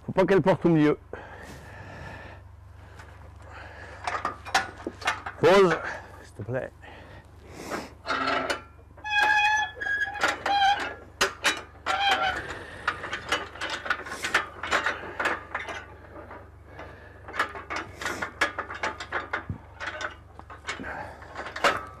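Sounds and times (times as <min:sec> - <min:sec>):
metallic clicking and clanking: 0:03.8 - 0:06.2, 0:08.0 - 0:22.0
short squeaks: 0:08.0 - 0:14.2.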